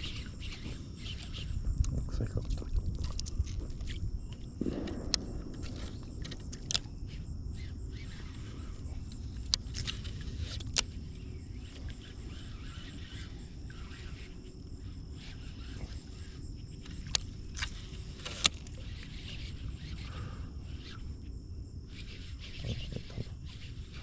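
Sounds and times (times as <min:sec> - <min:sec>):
high insect drone: 0:00.0 - 0:24.0
sharp clicks: 0:04.6 - 0:06.9, 0:08.2 - 0:11.0.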